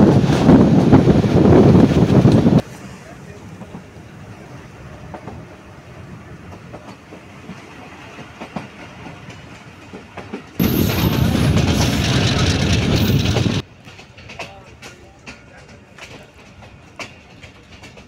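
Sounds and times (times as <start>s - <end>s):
train rumbling on rails: 0.0s - 18.0s
loud rushing roar: 10.6s - 13.6s.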